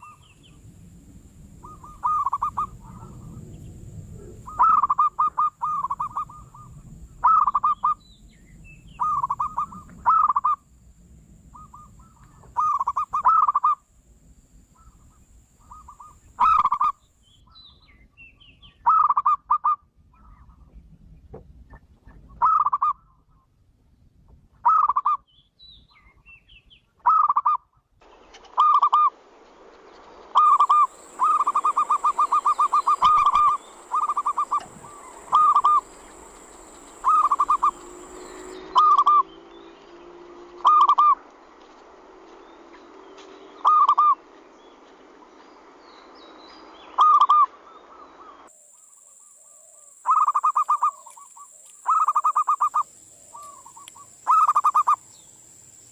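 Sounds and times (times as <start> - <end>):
dove cooing: 1.6 - 3.5, 4.1 - 8.0, 9.0 - 10.6, 11.6 - 13.8, 30.3 - 39.3, 40.6 - 41.2, 43.6 - 44.2, 49.5 - 55.0.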